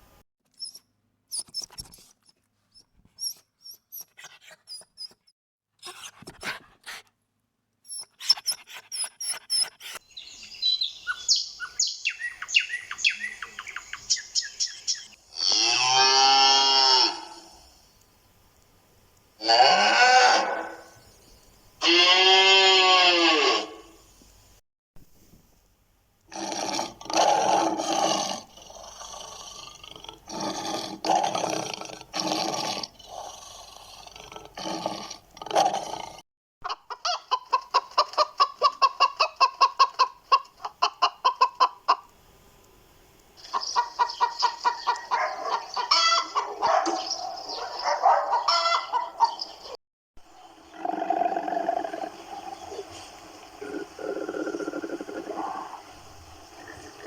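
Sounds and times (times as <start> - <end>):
chickens clucking: 36.6 - 42.1, 43.4 - 49.5.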